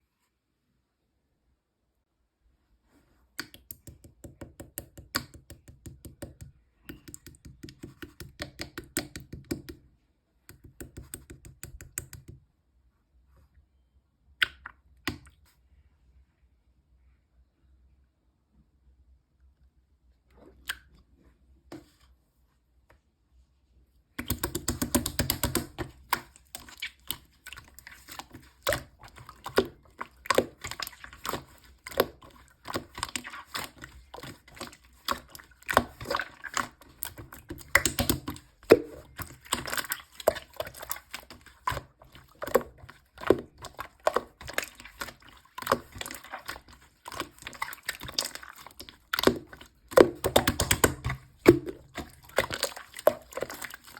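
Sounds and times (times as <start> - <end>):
hands squishing slime: 3.4 - 9.8, 10.5 - 12.4, 24.2 - 53.9.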